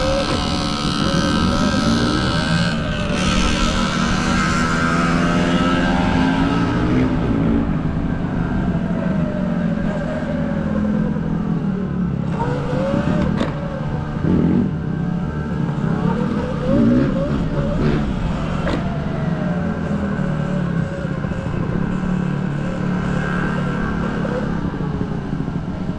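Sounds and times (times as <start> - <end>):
dirt bike engine revving: 0.0 - 10.4, 12.2 - 19.0.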